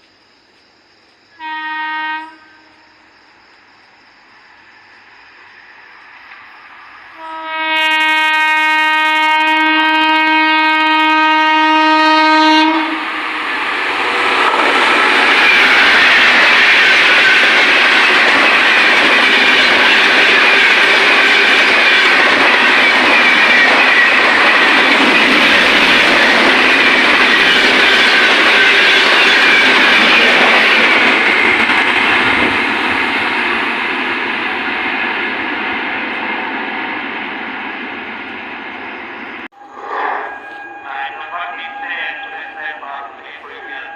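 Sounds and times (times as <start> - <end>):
train horn blast: 1.4 - 3.0, 7.2 - 13.2, 39.5 - 43.9
train passing at speed: 2.8 - 43.9
rushing wind: 13.0 - 41.1.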